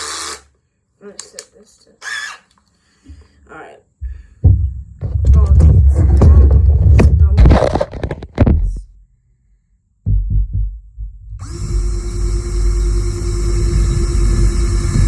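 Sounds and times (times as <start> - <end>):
power drill running: 0.0 - 0.5, 11.4 - 15.0
handling knocks: 4.0 - 8.8.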